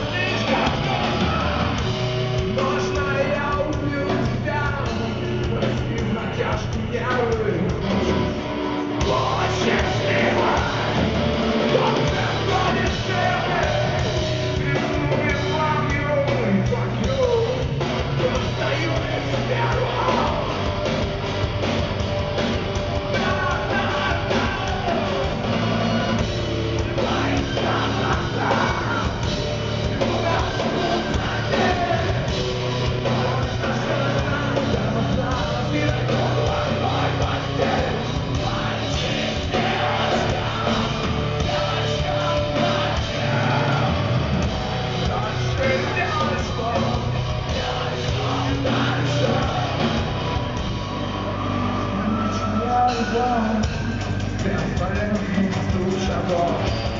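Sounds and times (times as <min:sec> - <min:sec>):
heavy rock band playing: 0:00.0 - 0:56.9
person singing: 0:08.9 - 0:20.7.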